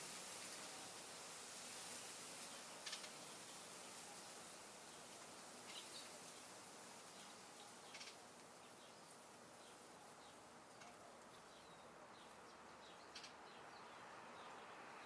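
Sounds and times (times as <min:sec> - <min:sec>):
low hiss of air: 0:00.0 - 0:07.2
birds chirping: 0:07.1 - 0:15.0.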